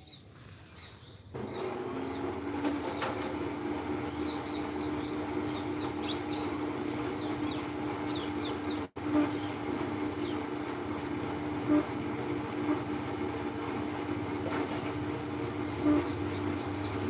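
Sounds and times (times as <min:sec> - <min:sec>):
small birds chirping: 0:00.0 - 0:03.2, 0:03.8 - 0:10.7, 0:15.1 - 0:17.0
mechanical hum with noisy rush: 0:00.0 - 0:17.0.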